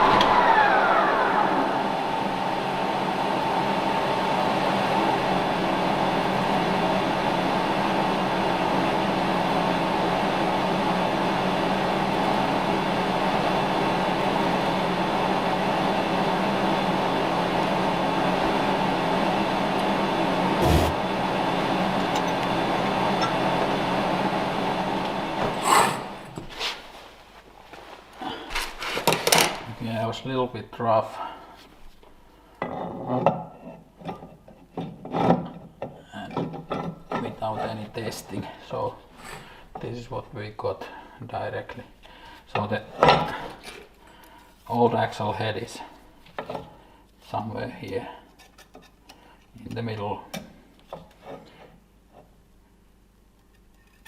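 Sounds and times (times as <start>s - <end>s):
machine tool humming: 19.8s - 26.4s.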